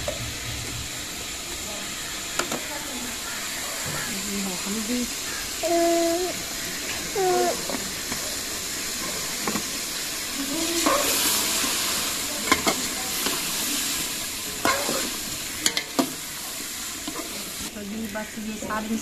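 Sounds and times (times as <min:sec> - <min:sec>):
meat sizzling in a pot: 0:00.0 - 0:19.0
ladle clinking and scraping pot: 0:14.6 - 0:16.0.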